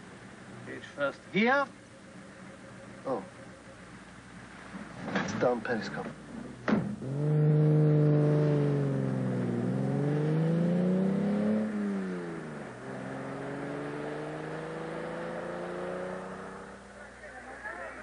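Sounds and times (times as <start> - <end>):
car engine revving: 6.2 - 17.2.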